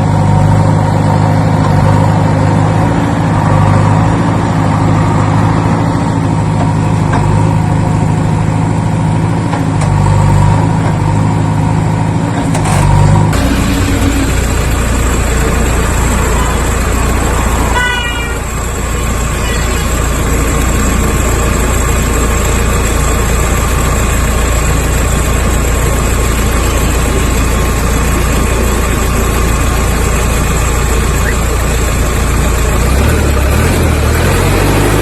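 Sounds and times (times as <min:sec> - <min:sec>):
vehicle running noise: 0:00.0 - 0:35.0
short horn toot: 0:17.7 - 0:18.5.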